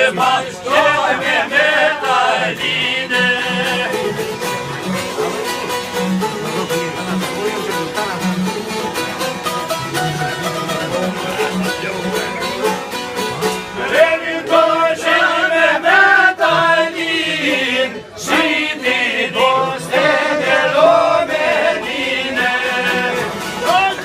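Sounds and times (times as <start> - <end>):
man singing ornamented melody: 0.0 - 4.5, 16.3 - 24.0
plucked string instrument: 0.0 - 24.0.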